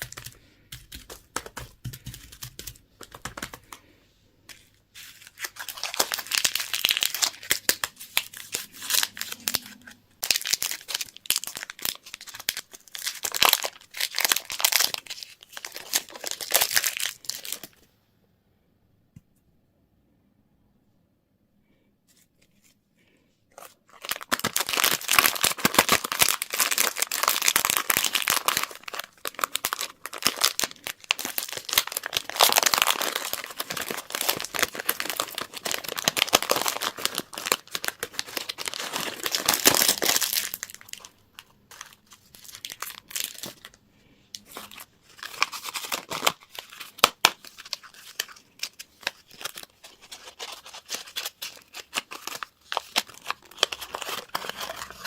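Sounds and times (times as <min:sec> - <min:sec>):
wrappers crinkling and tearing: 0:05.0 - 0:17.8, 0:23.6 - 0:43.8, 0:44.4 - 0:55.0.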